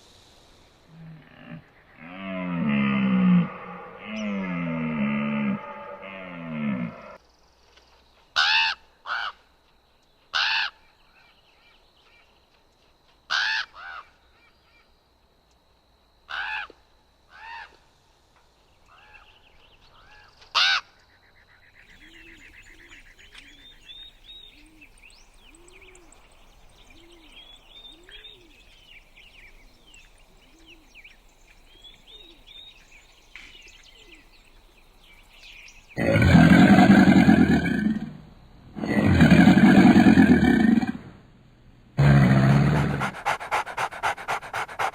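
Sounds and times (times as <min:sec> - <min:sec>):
deep animal call: 0:00.9 - 0:07.2, 0:36.0 - 0:41.2, 0:42.0 - 0:44.9.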